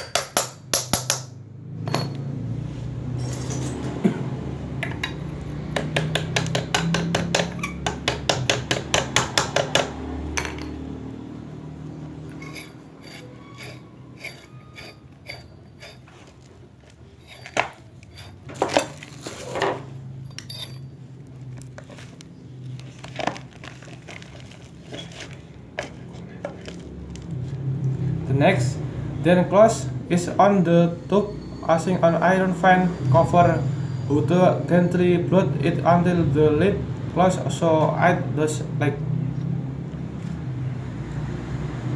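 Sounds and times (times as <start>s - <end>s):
metallic taps and clinks: 1.8s - 2.3s, 10.4s - 10.8s, 20.2s - 21.0s.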